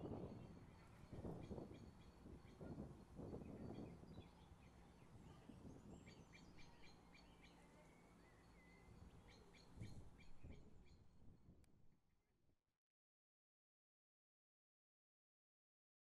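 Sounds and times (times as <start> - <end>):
small birds chirping: 0.2 - 11.0.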